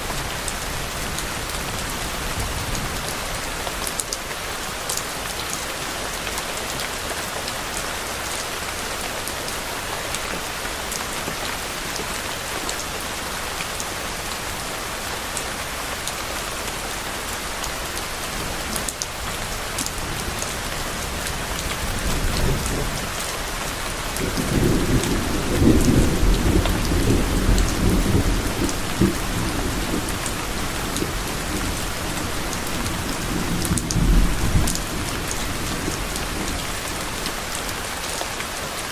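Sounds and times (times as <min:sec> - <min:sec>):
steady rain falling: 0:00.0 - 0:38.9
distant thunder rumble: 0:24.2 - 0:37.3.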